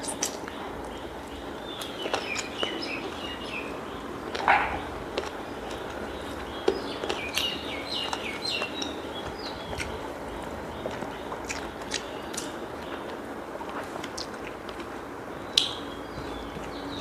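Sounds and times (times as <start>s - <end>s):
bird chirping: 0.0s - 13.2s, 15.3s - 17.0s.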